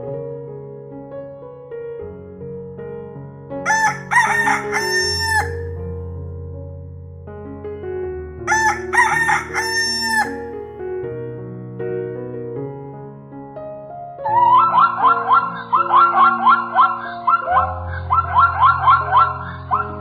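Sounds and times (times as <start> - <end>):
soft piano music: 0.0 - 20.0
animal calling: 3.7 - 5.6.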